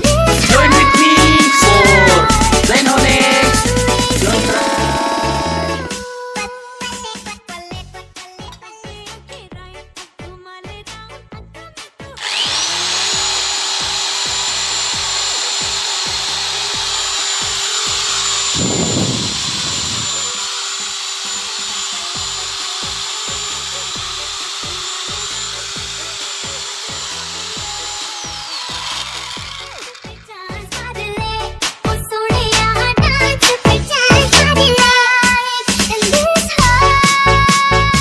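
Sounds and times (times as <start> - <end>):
grinder motor whining: 0.3 - 6.0, 12.2 - 31.1.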